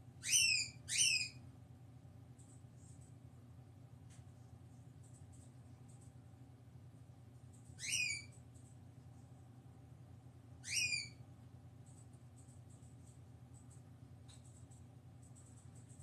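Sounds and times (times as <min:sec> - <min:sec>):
steady low hum: 0:00.0 - 0:16.0
bird whistled calls: 0:00.2 - 0:01.4, 0:07.8 - 0:08.3, 0:10.6 - 0:11.2.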